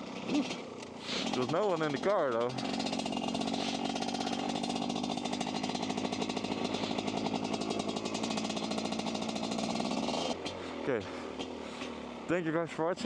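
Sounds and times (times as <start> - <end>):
dirtbike engine running: 0.0 - 13.0.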